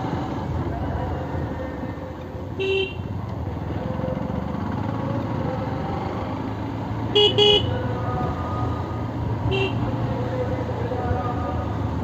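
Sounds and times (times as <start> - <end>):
motorcycle engine: 0.0 - 12.0
vehicle horn beeps: 7.2 - 7.7, 9.5 - 9.9.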